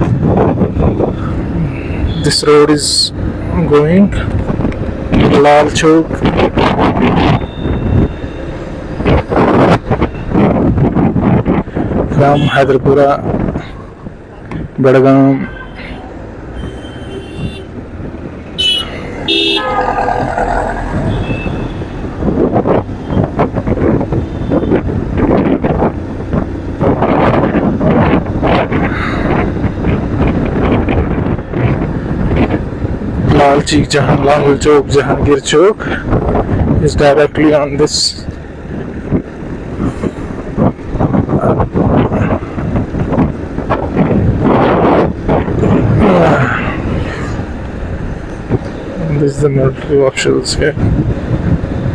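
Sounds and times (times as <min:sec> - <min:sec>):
road and traffic noise: 0:00.0 - 0:51.9
wind noise on microphone: 0:00.0 - 0:51.9
vehicle horns honking: 0:16.6 - 0:17.8, 0:18.5 - 0:20.1, 0:21.0 - 0:22.0.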